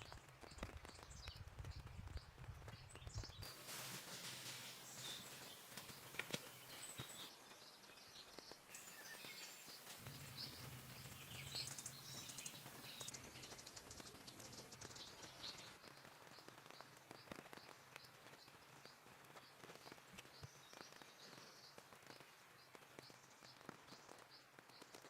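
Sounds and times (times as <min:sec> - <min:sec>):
small clicks and ticks: 0:00.0 - 0:25.0
birds chirping: 0:02.8 - 0:15.8.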